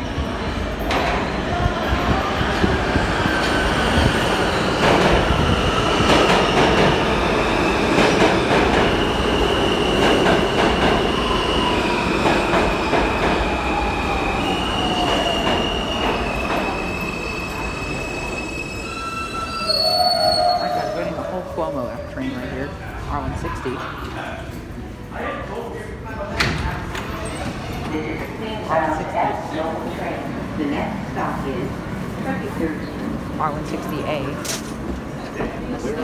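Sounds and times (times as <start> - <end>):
train wheels rumbling on rail: 0.0 - 25.2, 25.8 - 36.0
high wheel squeals: 16.6 - 22.6.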